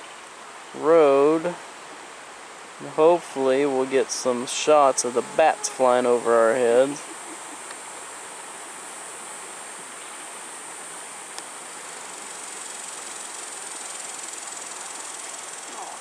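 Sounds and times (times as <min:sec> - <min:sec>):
soft hiss: 0:00.0 - 0:16.0
insect chorus shrilling: 0:02.5 - 0:16.0.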